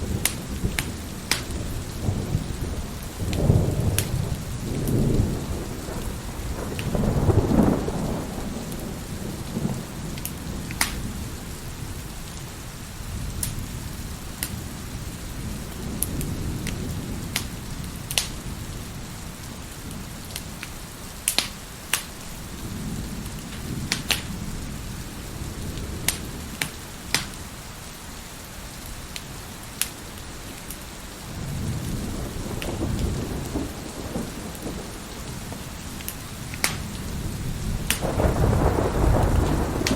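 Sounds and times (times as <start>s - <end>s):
thunder rolling: 0.0s - 12.1s, 31.3s - 39.9s
steady rain: 0.0s - 39.9s
wood fire crackling: 0.0s - 39.9s.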